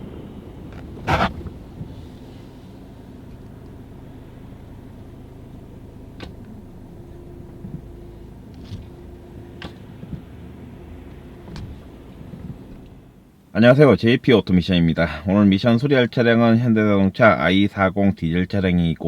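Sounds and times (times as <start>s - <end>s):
car engine idling: 0.5s - 13.3s.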